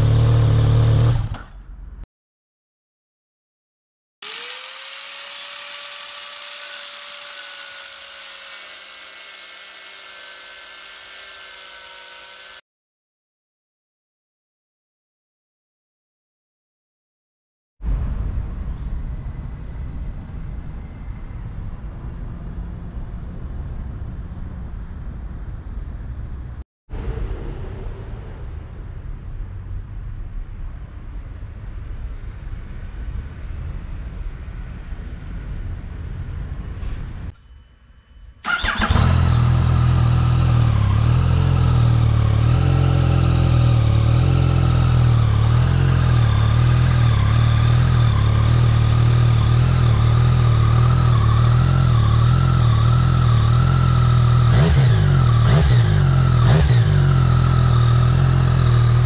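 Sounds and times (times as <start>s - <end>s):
low rumbling noise: 17.8s - 37.3s.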